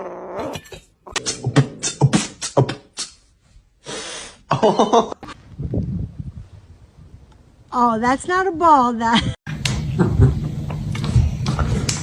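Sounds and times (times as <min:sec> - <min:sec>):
person beatboxing: 0:01.2 - 0:03.2.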